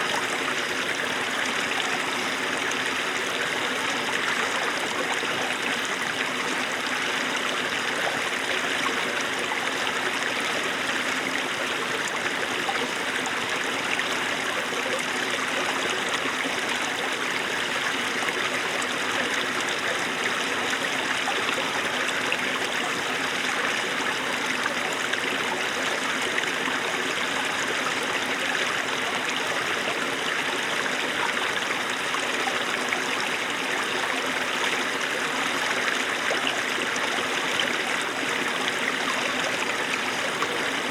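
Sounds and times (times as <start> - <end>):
stream babbling over rocks: 0.0 - 40.9.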